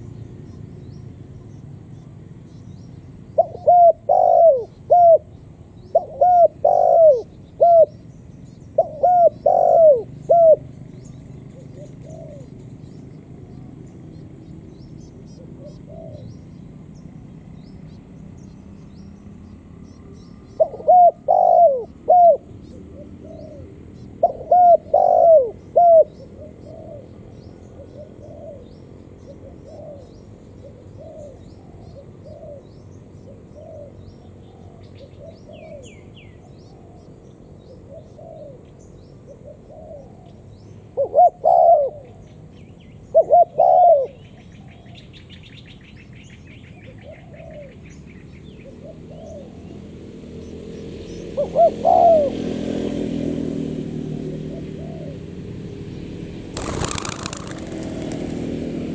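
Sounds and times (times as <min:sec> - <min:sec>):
small birds chirping: 0:00.0 - 0:20.9, 0:54.7 - 0:58.9
dove cooing: 0:03.4 - 0:05.3, 0:05.9 - 0:08.0, 0:08.8 - 0:10.7, 0:11.6 - 0:12.6, 0:15.5 - 0:16.4, 0:20.6 - 0:27.0, 0:41.0 - 0:42.2, 0:43.2 - 0:44.2, 0:51.4 - 0:52.4, 0:56.6 - 0:58.9.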